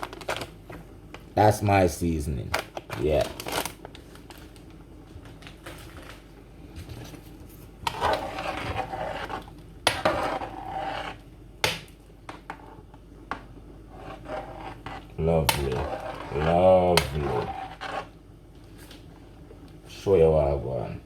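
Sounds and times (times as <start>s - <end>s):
spoon scraping in a pot: 7.8s - 11.2s, 13.9s - 18.2s.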